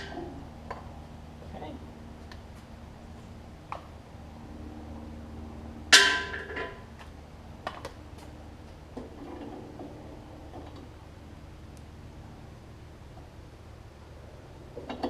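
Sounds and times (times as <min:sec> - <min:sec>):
loud ringing metal clank: 0:05.9 - 0:06.9.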